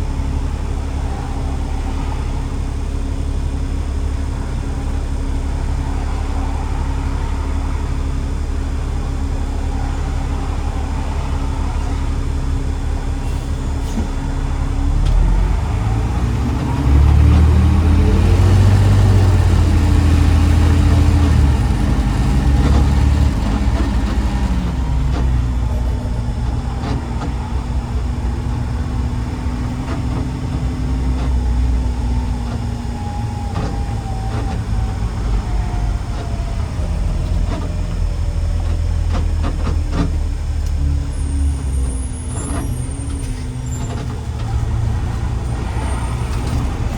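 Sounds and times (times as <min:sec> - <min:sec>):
garbage truck diesel engine: 0:00.0 - 0:46.9.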